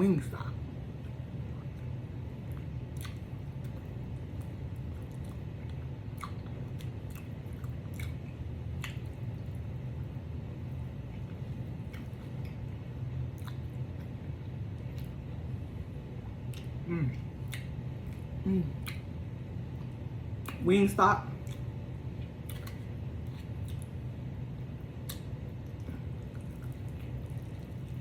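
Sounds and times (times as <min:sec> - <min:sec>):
low steady hum: 0:00.0 - 0:28.0
chewing fried chicken: 0:00.9 - 0:28.0
wet mouth clicks and smacks: 0:02.6 - 0:03.8, 0:08.8 - 0:09.2, 0:17.4 - 0:19.1, 0:20.4 - 0:20.6, 0:21.4 - 0:21.7, 0:22.4 - 0:24.0, 0:25.0 - 0:27.5.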